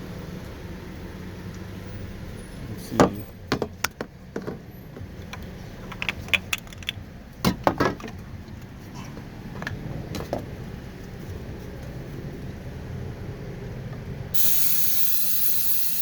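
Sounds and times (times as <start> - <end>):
engine clicks and rattles: 3.5 - 8.7.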